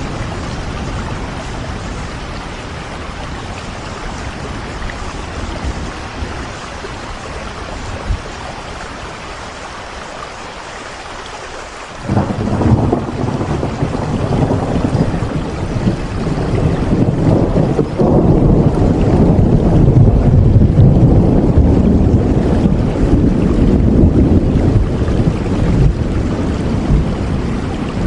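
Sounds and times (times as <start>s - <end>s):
rain falling: 0.0s - 28.0s
loud low rumble: 12.1s - 28.0s.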